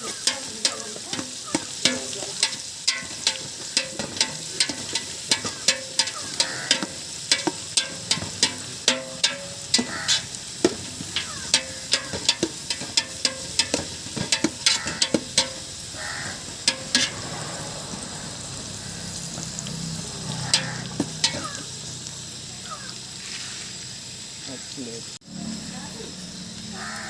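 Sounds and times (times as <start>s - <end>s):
spatula scraping a pan: 0.0s - 21.7s
food sizzling: 0.0s - 27.0s.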